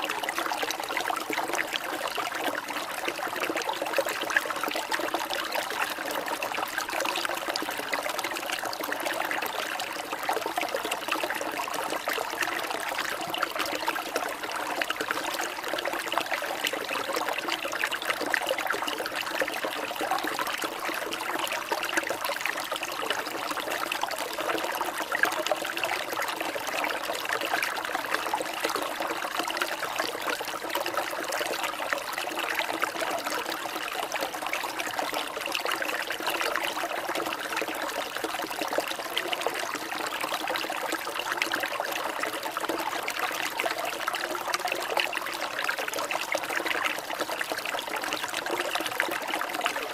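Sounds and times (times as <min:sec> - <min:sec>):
water trickling and babbling: 0:00.0 - 0:49.9.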